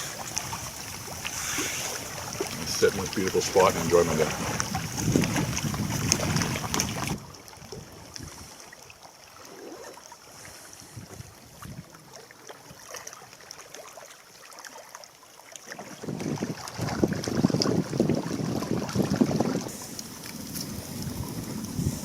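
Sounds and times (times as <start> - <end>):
wind buffeting microphone: 0.0 - 8.5, 10.9 - 11.9, 16.0 - 22.0.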